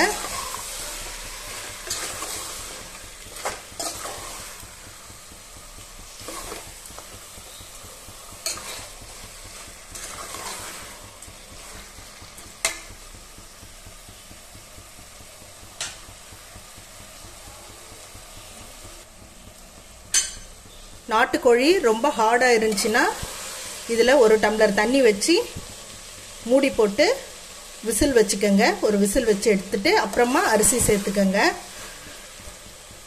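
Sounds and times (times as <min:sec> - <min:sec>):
spoon stirring and scraping: 0:00.0 - 0:04.6, 0:06.1 - 0:07.7, 0:08.4 - 0:12.9
food sizzling in a pot: 0:00.0 - 0:33.0.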